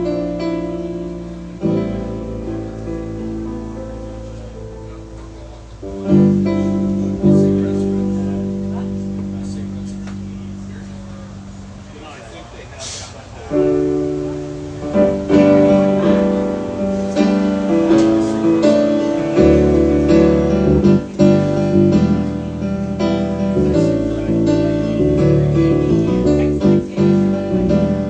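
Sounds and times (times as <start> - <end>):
acoustic guitar strumming chords: 13.6 - 28.0.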